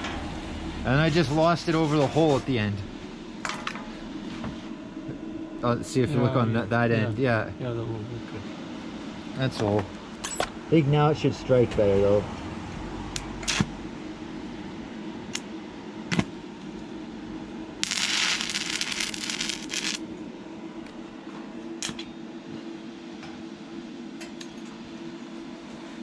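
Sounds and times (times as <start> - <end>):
steady low hum: 0.0 - 26.0
welding arc crackling: 13.4 - 13.8, 17.8 - 20.1
welding rod tapping metal: 17.8 - 20.0.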